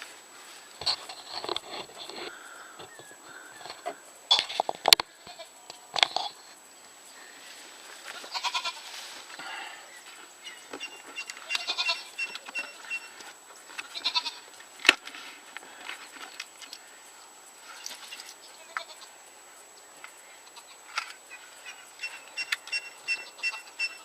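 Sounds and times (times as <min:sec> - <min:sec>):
animal bleating: 0:05.2 - 0:05.6, 0:08.2 - 0:08.9, 0:10.8 - 0:13.1, 0:13.8 - 0:14.5, 0:18.5 - 0:19.1, 0:23.1 - 0:24.0.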